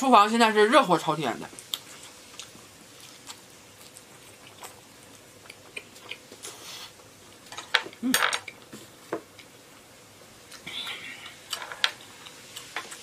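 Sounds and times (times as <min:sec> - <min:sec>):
chewing with wet mouth clicks: 0:01.6 - 0:06.4.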